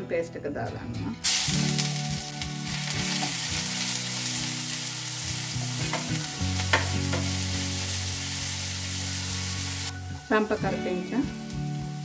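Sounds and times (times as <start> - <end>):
paste sizzling in hot oil: 1.2 - 10.4
wooden spoon tapping pan: 5.9 - 7.3.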